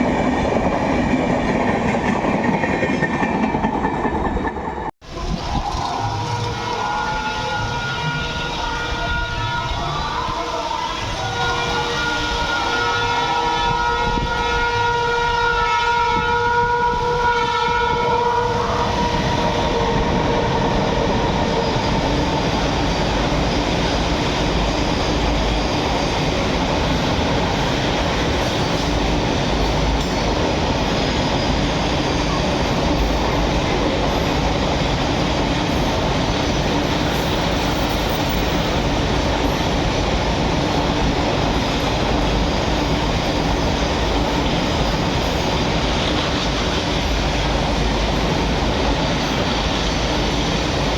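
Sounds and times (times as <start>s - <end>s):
locomotive horn: 5.8s - 22.0s
train wagons wheel clatter: 18.4s - 50.9s.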